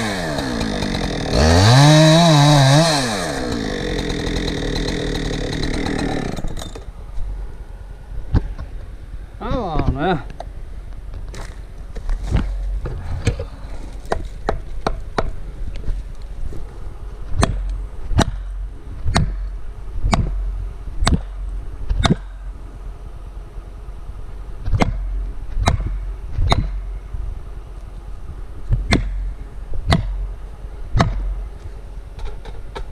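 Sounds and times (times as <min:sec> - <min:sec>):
hammer striking felling wedge: 0:20.1 - 0:20.4, 0:21.0 - 0:21.4, 0:31.0 - 0:31.4.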